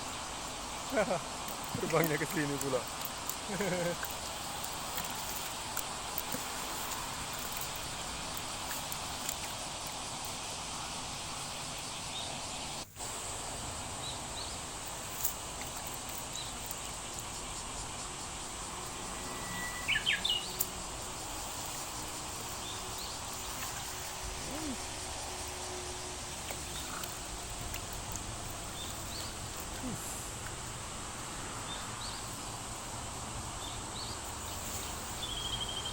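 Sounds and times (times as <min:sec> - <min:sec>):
insects: 0:00.0 - 0:35.9
outdoor background hiss: 0:00.0 - 0:35.9
bird chirps: 0:19.1 - 0:20.7.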